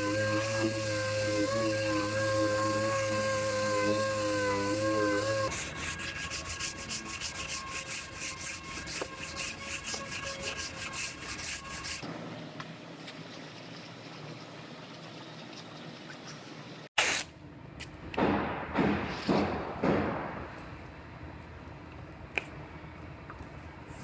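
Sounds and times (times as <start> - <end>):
rubbing strokes on metal: 0.0 - 12.1.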